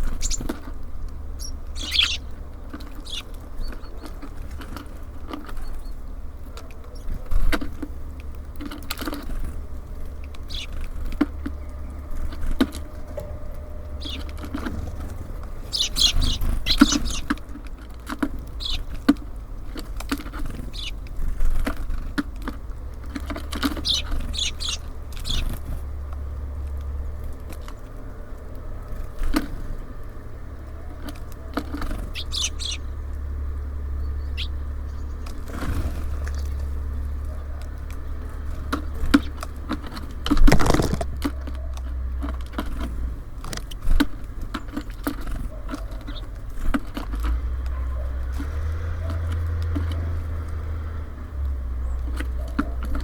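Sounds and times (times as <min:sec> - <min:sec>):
steady low rumble: 0:00.0 - 0:45.0
birds pecking and scrabbling: 0:00.0 - 0:53.0
short high bird chirps: 0:00.1 - 0:00.5, 0:01.4 - 0:02.3, 0:13.4 - 0:14.4, 0:15.6 - 0:17.3, 0:32.1 - 0:32.8.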